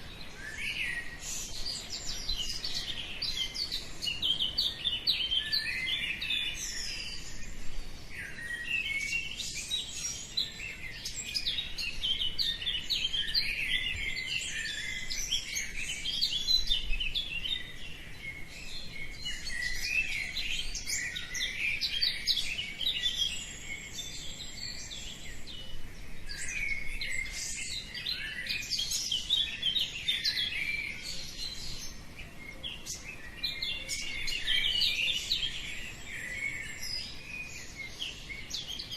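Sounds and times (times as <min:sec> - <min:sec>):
small birds chirping chorus: 0:00.0 - 0:38.9.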